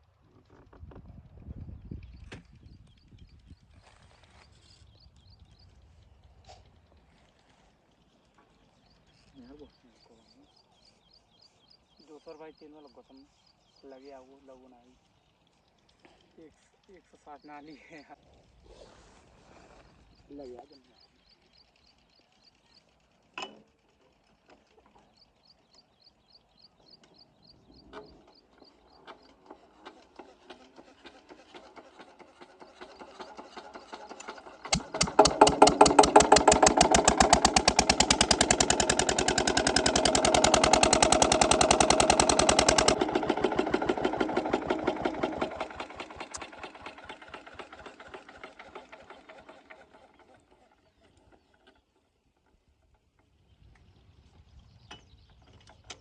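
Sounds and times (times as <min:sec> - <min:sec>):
diesel engine cranking and chugging: 0:28.0 - 0:53.4.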